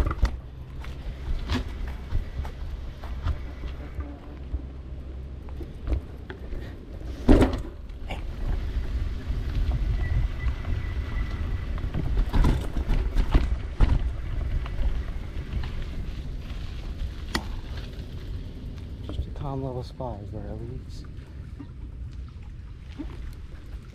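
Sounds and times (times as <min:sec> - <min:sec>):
bike knocking and rattling: 0:00.0 - 0:19.7
wind rumbling on microphone: 0:00.0 - 0:23.9.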